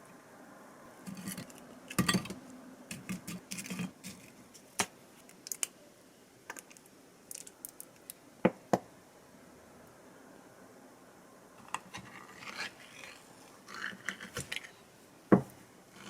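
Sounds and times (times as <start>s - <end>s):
kitchenware clicking and clattering: 1.1s - 2.4s.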